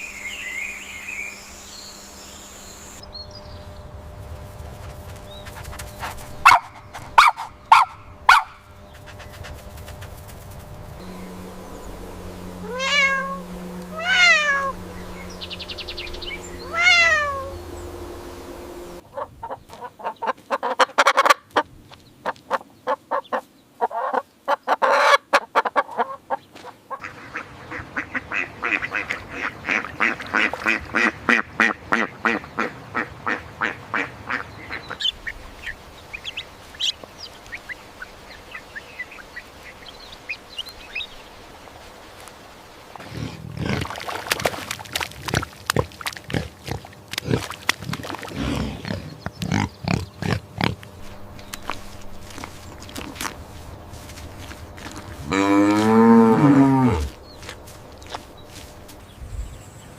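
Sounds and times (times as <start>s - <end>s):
fast repeated pulses: 9.0s - 19.0s
animal calls rising and falling: 11.0s - 19.6s
sharp rapid animal calls: 12.7s - 17.5s.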